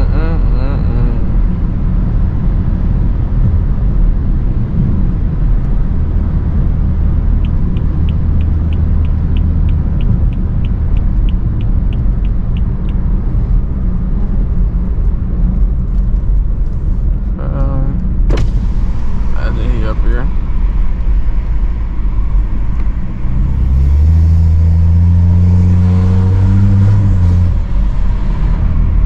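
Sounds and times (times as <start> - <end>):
car engine low drone: 0.0 - 29.0
high ticks: 7.4 - 13.1.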